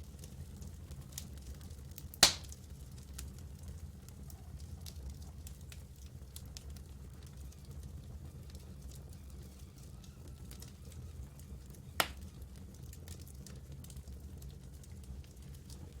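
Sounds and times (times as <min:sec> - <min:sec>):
campfire crackling: 0:00.1 - 0:16.0
loud sharp pop: 0:02.2 - 0:02.5.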